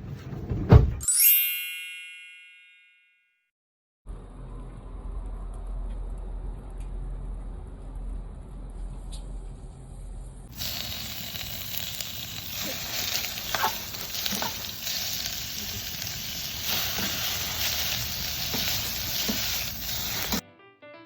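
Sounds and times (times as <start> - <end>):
food sizzling in a frying pan: 10.5 - 20.4.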